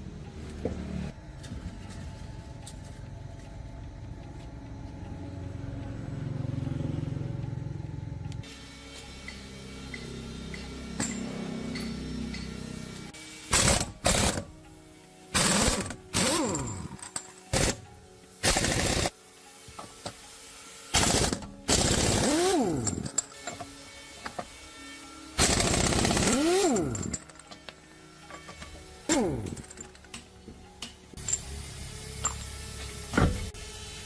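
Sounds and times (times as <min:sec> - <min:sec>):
power tool rattling bursts: 0:13.5 - 0:14.5, 0:15.4 - 0:17.8, 0:18.4 - 0:19.2, 0:20.9 - 0:23.8, 0:25.4 - 0:27.7, 0:28.5 - 0:30.0.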